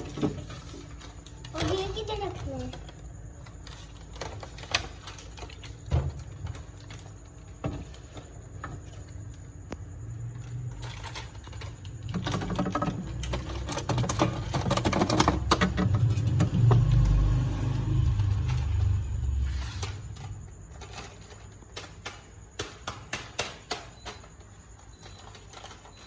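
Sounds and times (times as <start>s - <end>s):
low rumble: 16.0s - 20.3s.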